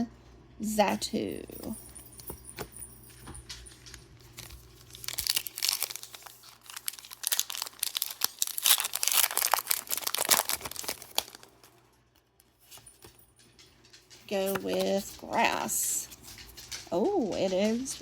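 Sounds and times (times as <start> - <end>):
foil wrapper crinkling and tearing: 4.3 - 12.8.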